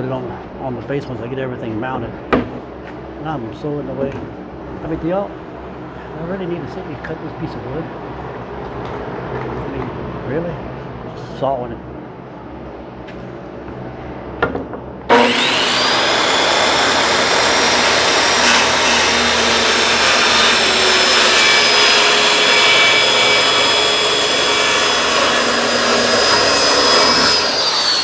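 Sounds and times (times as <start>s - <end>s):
circular saw cutting board: 15.1s - 28.0s.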